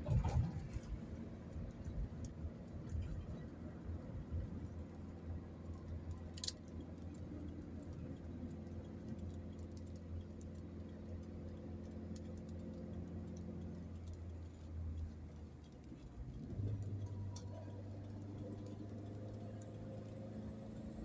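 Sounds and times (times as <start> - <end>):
car cabin drone: 0.0 - 21.0
faint clicks and ticks: 0.0 - 21.0.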